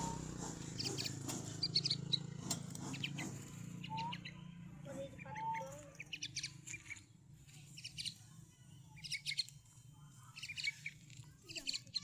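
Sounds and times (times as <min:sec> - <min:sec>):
pet bird chirping: 0:10.4 - 0:12.0.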